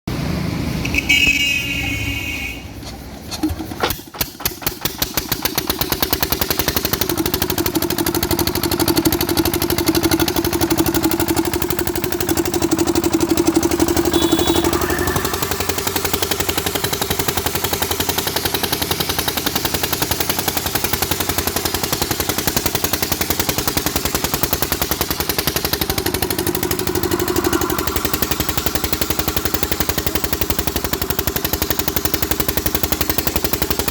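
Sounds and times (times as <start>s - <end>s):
water-cooled engine running: 3.6s - 33.9s
brief loud sound: 14.0s - 16.9s, 25.8s - 31.2s.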